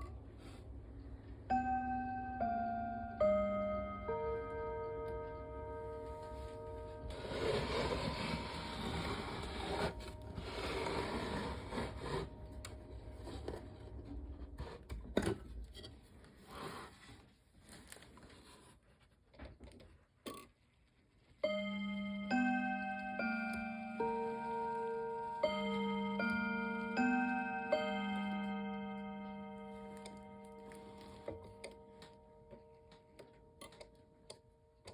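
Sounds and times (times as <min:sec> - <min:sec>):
clock chime ringing: 0:01.1 - 0:14.2, 0:21.4 - 0:34.9
rustling: 0:16.0 - 0:21.4.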